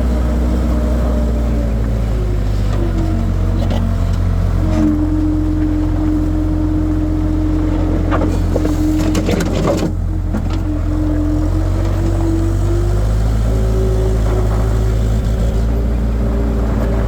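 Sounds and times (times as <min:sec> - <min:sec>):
skid steer engine droning: 0:00.0 - 0:17.0
bucket clanking and scraping ground: 0:07.6 - 0:10.6.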